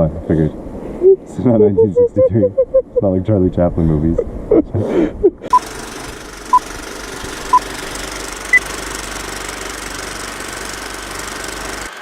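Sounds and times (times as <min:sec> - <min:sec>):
steady mechanical clatter: 0:05.6 - 0:12.0.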